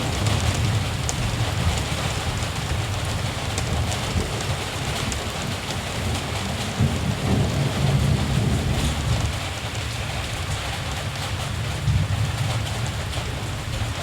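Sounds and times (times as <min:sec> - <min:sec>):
distant thunder rumble: 0:00.0 - 0:09.9
steady rain falling: 0:00.0 - 0:14.0.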